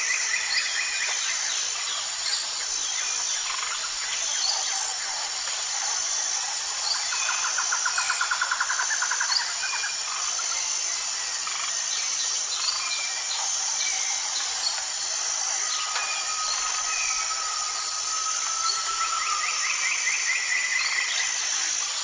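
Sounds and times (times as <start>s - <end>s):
high insect drone: 0.0s - 22.0s
long whistle-like bird note: 15.8s - 20.4s.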